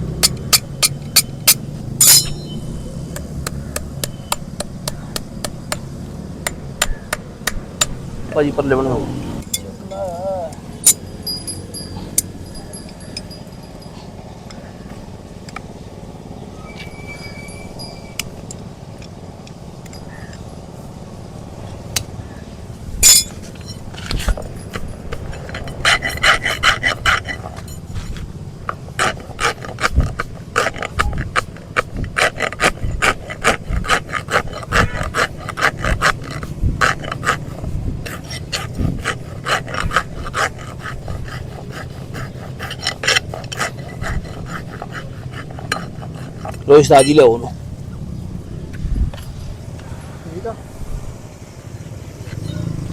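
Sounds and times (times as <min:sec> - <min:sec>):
metal tools clicking on hoof: 0:00.0 - 0:05.8, 0:09.4 - 0:14.6, 0:23.0 - 0:47.6.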